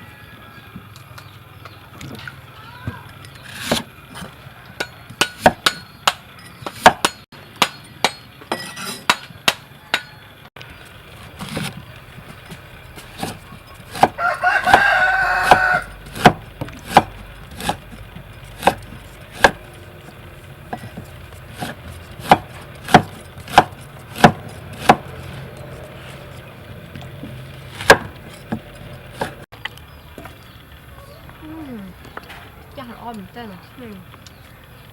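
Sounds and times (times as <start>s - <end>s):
rooster crowing: 0.0s - 0.8s, 9.6s - 10.5s, 13.9s - 16.0s
sharp knocks: 11.4s - 17.9s, 20.7s - 25.1s, 27.2s - 29.4s.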